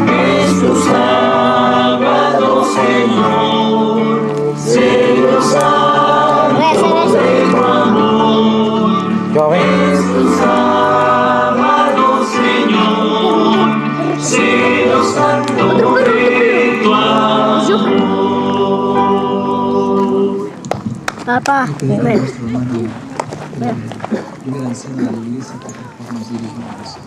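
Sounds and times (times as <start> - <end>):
choir singing religious song: 0.0 - 20.7
held instrumental chords: 0.0 - 24.0.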